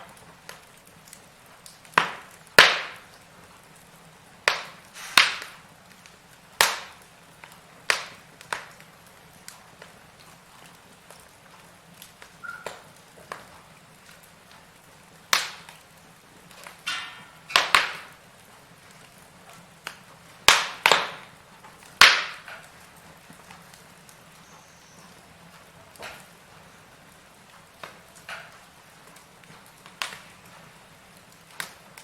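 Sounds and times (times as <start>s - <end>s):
firewood crackling: 0.0s - 32.0s
sharp pops from fire: 0.0s - 32.0s
brief hiss: 4.9s - 5.3s.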